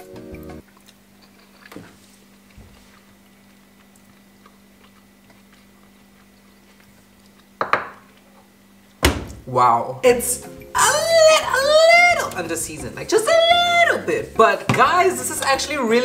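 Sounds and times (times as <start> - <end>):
person chewing quietly: 0.4 - 8.6.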